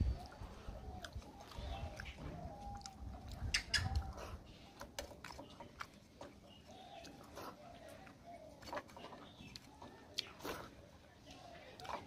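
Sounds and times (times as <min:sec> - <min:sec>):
chewing and mouth smacks: 0:00.0 - 0:12.0.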